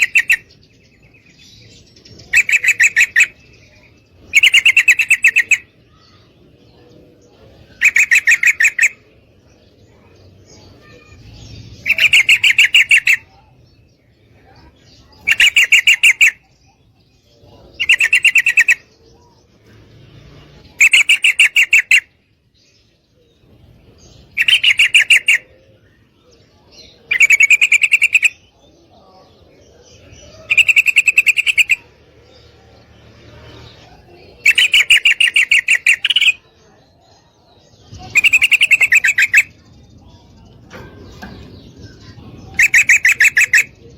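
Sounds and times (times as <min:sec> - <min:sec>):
bird chattering call: 0:00.0 - 0:00.7, 0:02.2 - 0:06.3, 0:07.6 - 0:09.1, 0:10.6 - 0:13.5, 0:14.4 - 0:16.5, 0:17.5 - 0:19.0, 0:20.7 - 0:22.2, 0:24.2 - 0:26.1, 0:26.8 - 0:28.6, 0:29.9 - 0:32.5, 0:33.4 - 0:36.9, 0:37.7 - 0:43.9.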